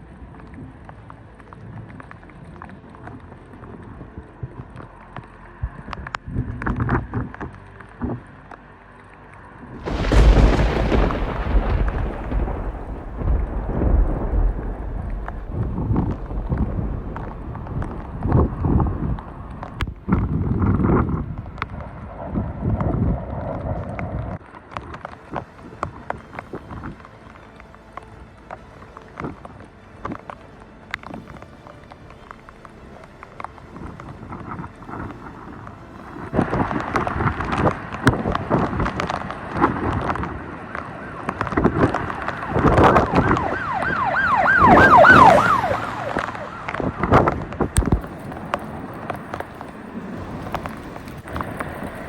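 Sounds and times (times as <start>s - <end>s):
wind buffeting microphone: 9.7s - 30.3s, 32.4s - 52.0s
siren yelping: 42.3s - 47.1s.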